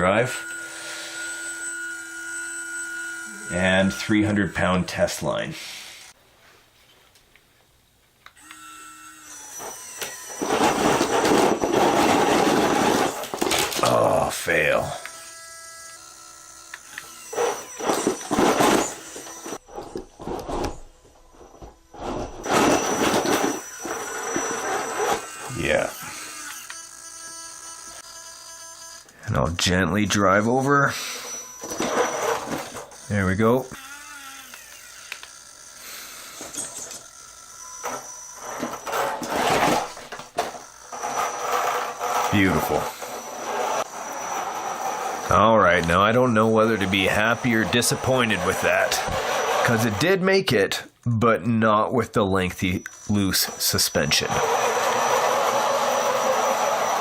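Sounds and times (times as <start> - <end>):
electric motor whirring: 0.0 - 4.8, 8.4 - 50.1, 52.6 - 57.0
tyres scraping on wood: 10.1 - 14.0, 37.8 - 50.1.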